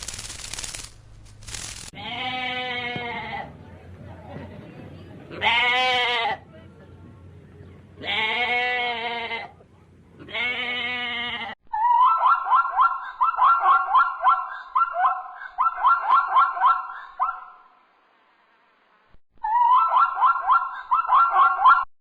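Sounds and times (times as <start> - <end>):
livestock bleating: 2.0 - 3.5, 5.4 - 6.4, 8.0 - 9.6, 10.2 - 11.6.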